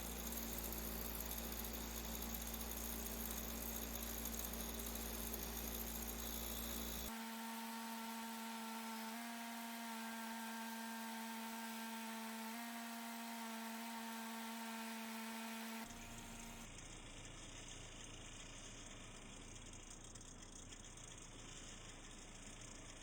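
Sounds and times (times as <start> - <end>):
electric motor humming: 0.0 - 11.2.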